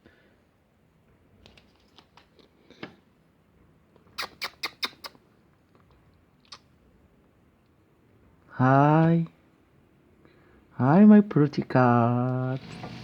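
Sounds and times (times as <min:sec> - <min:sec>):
sharp small clicks: 0:04.2 - 0:05.2.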